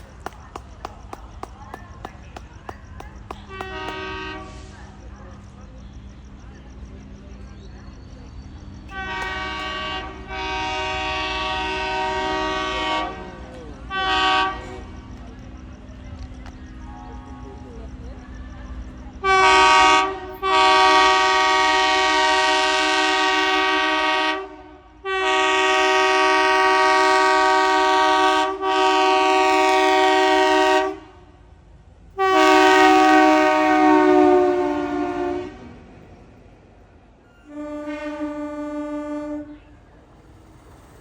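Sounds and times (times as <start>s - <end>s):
locomotive air horn blasts: 3.4s - 4.8s, 8.9s - 15.0s, 19.2s - 31.3s, 32.2s - 35.8s, 37.4s - 39.9s.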